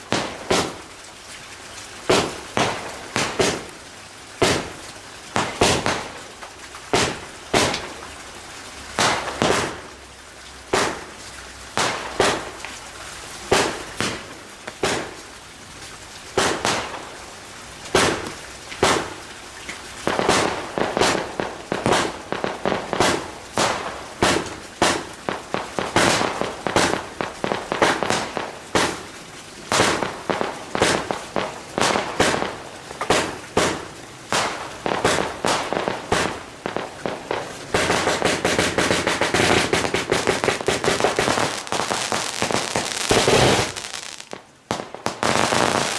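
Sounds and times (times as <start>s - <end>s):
fireworks banging: 0.0s - 0.8s, 2.1s - 3.7s, 5.4s - 6.2s, 6.9s - 7.9s, 11.8s - 12.6s, 13.5s - 15.2s, 16.4s - 17.1s, 17.9s - 19.2s, 20.0s - 29.1s, 29.7s - 45.9s.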